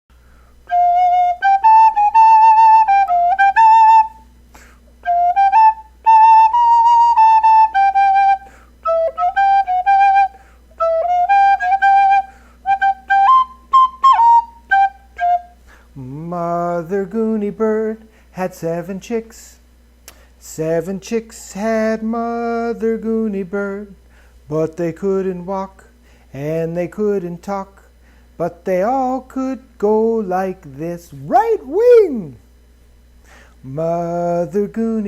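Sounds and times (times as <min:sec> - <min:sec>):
faint low hum: 0:00.1 - 0:35.0
flute melody: 0:00.7 - 0:04.3, 0:05.0 - 0:15.6, 0:31.3 - 0:32.4.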